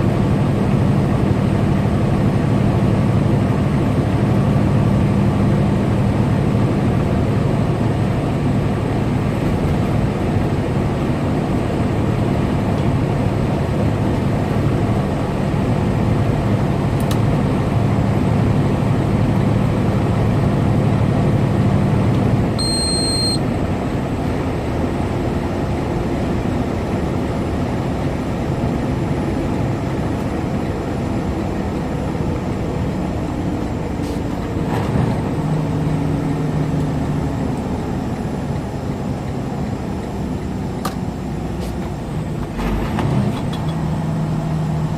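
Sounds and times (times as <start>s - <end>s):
road noise: 0.0s - 44.9s
truck engine drone: 0.0s - 44.9s
short high beep: 22.6s - 23.4s.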